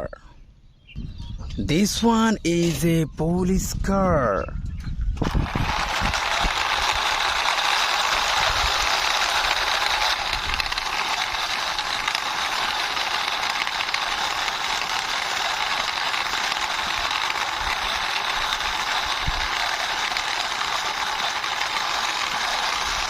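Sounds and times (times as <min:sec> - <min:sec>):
toy car wheels rattling: 0:05.2 - 0:23.0.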